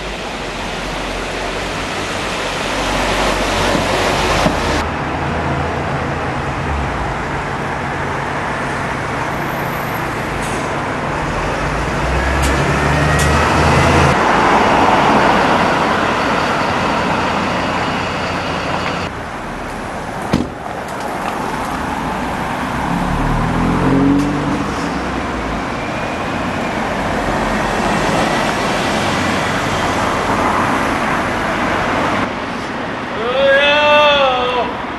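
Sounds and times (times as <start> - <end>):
engine running low: 0.0 - 33.1
vehicle passing: 19.0 - 32.6.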